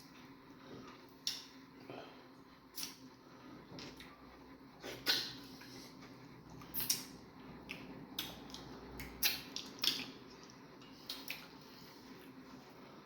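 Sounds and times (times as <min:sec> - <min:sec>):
chewing with wet mouth smacks: 0:06.5 - 0:12.4.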